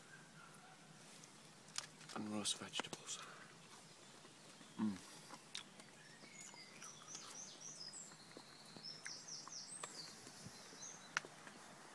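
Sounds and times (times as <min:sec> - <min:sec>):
songbird chirping: 0:00.0 - 0:11.9.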